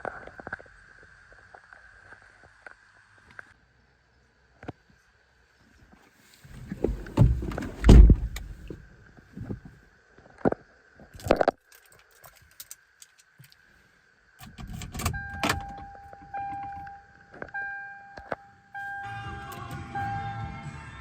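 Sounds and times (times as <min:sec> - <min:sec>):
heavy thumps: 0:06.6 - 0:08.8
steady electronic tone: 0:15.1 - 0:21.0.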